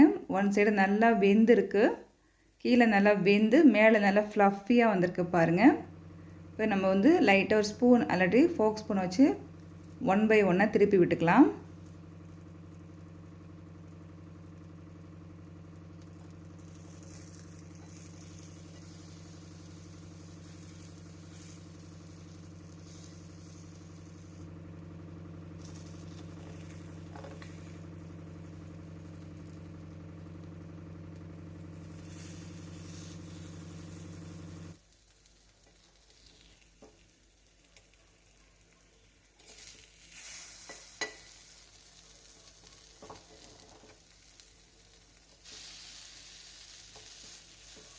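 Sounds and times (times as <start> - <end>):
steady low hum: 0.0 - 35.5
food sizzling in oil: 11.7 - 47.9.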